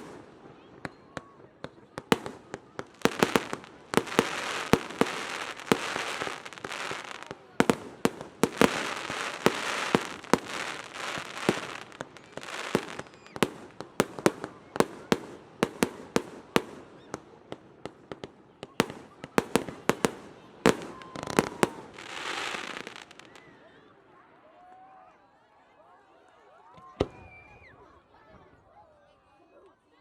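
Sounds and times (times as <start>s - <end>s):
fireworks bangs: 0.0s - 23.4s
fireworks hiss: 2.9s - 14.2s, 21.1s - 23.3s.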